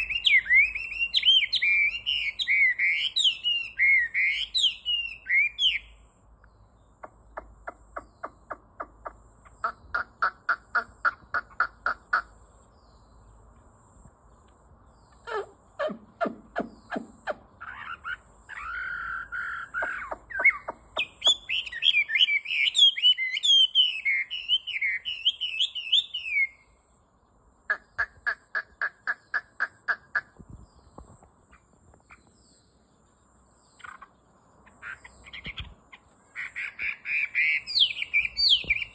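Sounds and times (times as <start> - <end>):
songbird whistling and warbling: 0.0 - 6.0, 15.1 - 26.7, 34.8 - 38.9.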